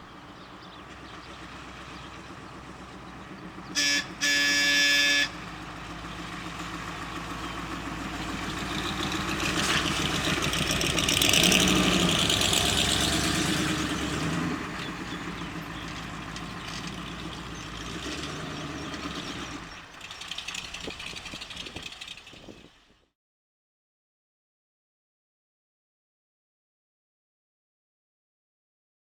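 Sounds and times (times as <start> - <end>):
vehicle engine running: 0.0 - 23.1.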